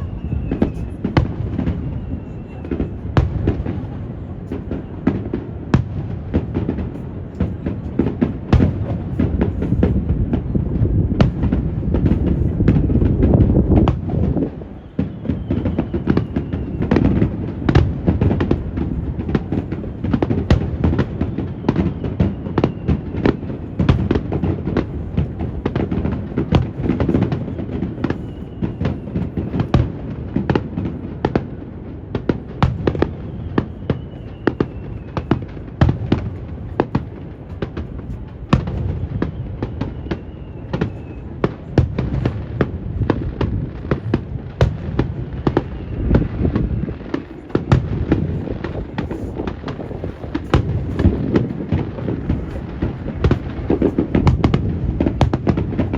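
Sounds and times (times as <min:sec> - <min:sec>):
wind rumble on microphone: 0:00.0 - 0:31.8, 0:32.8 - 0:55.9
fireworks bursts and crackling: 0:00.0 - 0:55.9
faint whistles sliding down: 0:14.7 - 0:17.1, 0:28.2 - 0:29.4, 0:33.1 - 0:35.5, 0:39.0 - 0:41.3.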